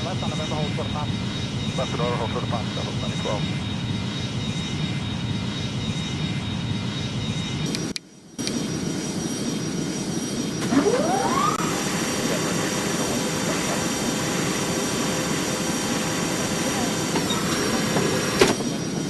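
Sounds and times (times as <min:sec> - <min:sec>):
jet engines running: 0:00.0 - 0:19.0
rising tone: 0:08.4 - 0:18.4.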